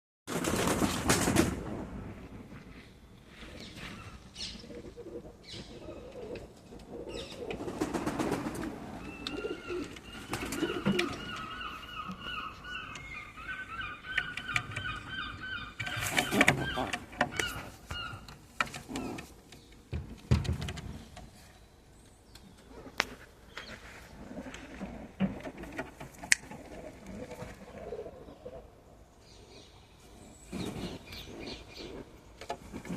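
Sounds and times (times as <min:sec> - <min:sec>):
pigeon cooing: 0:04.0 - 0:19.3, 0:26.3 - 0:28.8.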